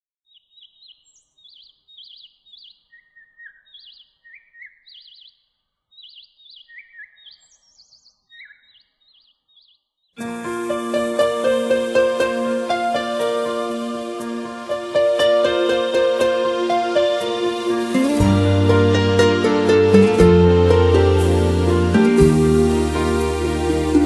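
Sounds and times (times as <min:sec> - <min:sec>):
small birds chirping: 0:00.3 - 0:10.2
music: 0:10.2 - 0:24.0.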